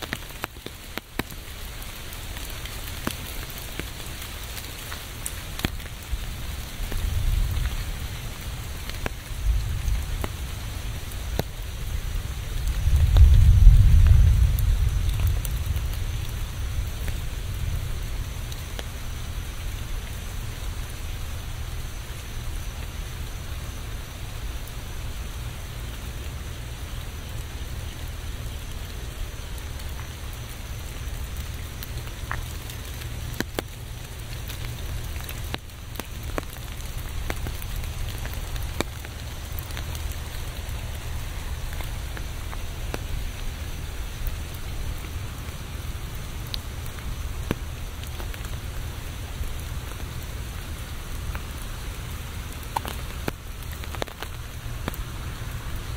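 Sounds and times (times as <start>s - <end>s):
sharp raindrops ticking: 0.0s - 55.9s
steady rain falling: 0.0s - 55.9s
low rumble: 12.0s - 18.6s.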